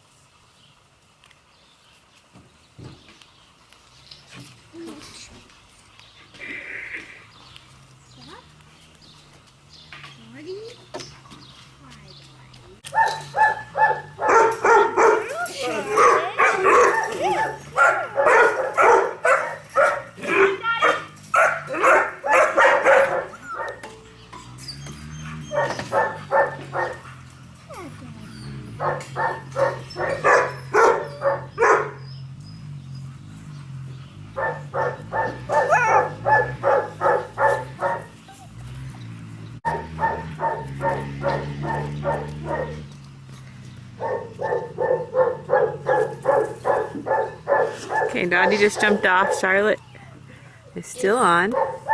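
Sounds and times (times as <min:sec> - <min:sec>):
dog barking: 0:12.9 - 0:23.8, 0:25.2 - 0:27.2, 0:28.5 - 0:32.1, 0:34.3 - 0:38.4, 0:39.6 - 0:42.9, 0:44.0 - 0:49.8, 0:51.5 - 0:51.9.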